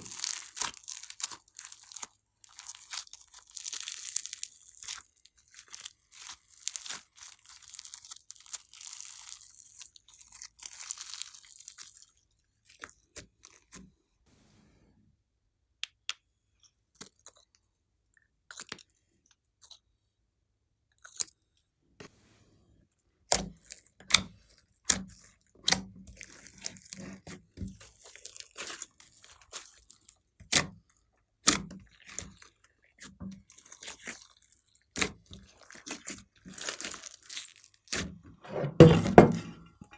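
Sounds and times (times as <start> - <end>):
hands squishing slime: 0.0 - 12.1, 23.3 - 30.8, 31.4 - 38.2.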